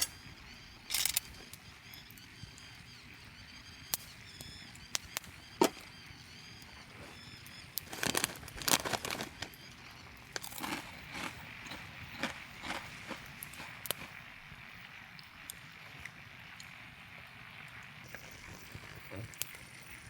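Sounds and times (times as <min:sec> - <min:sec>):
campfire crackling and popping: 0:00.0 - 0:20.0
rustling and crunching: 0:05.6 - 0:06.0, 0:06.7 - 0:14.5.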